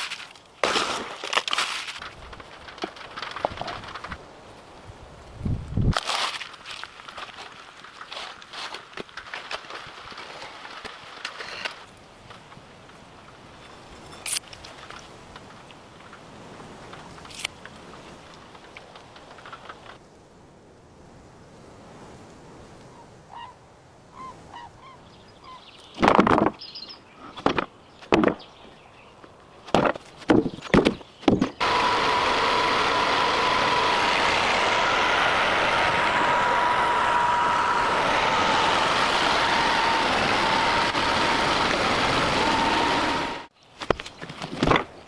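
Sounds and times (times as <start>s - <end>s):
machine motor whining: 31.6s - 43.5s.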